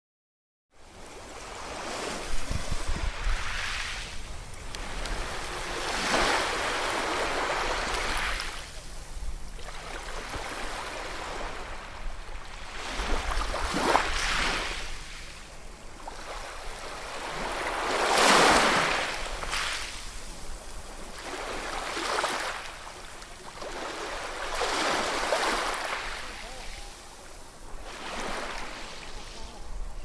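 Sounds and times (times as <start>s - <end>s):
ocean waves breaking on shore: 0.8s - 30.0s.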